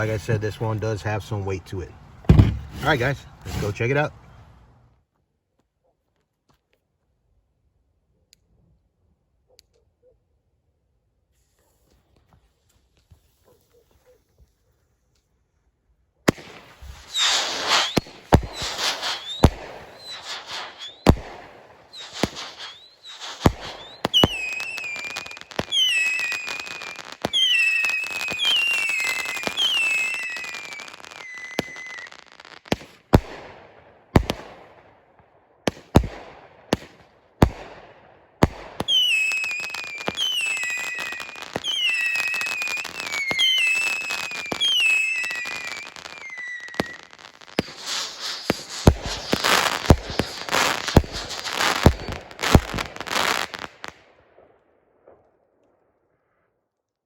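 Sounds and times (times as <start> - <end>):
firework crackle: 2.3 - 4.0, 16.3 - 34.7, 35.7 - 37.8, 38.4 - 54.1
firework launch shots: 2.3 - 4.0, 16.3 - 34.9, 35.6 - 54.1
firework whistles and screams: 16.4 - 32.9, 38.8 - 53.9.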